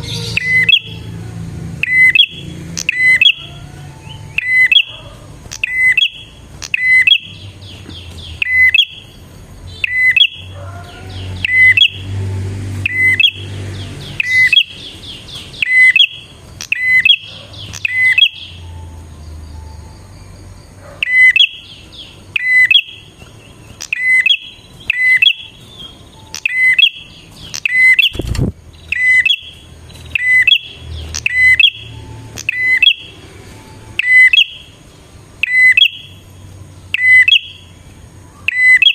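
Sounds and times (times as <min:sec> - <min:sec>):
bird chirping: 0:00.0 - 0:38.9
bird rattling trills: 0:21.0 - 0:33.1.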